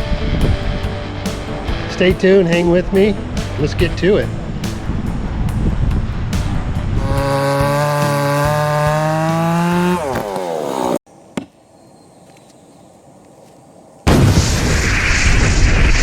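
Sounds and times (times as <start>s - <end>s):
chainsaw engine revving: 7.0s - 11.0s.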